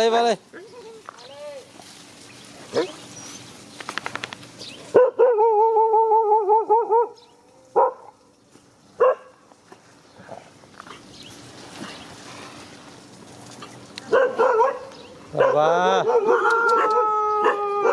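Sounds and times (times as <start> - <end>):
dogs barking: 2.6 - 3.1, 4.9 - 8.2, 9.0 - 10.4, 14.0 - 17.9
dog high wavering cry: 15.4 - 17.9.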